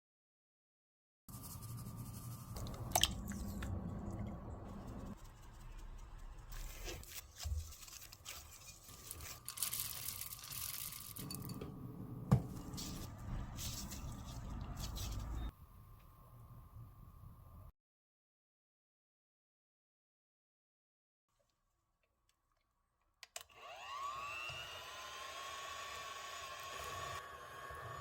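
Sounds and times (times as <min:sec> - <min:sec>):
rustling of packaging: 0:06.4 - 0:11.4, 0:12.5 - 0:15.5.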